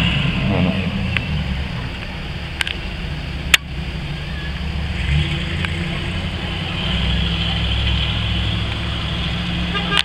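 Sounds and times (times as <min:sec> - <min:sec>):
car engine rumbling: 0:00.0 - 0:10.0.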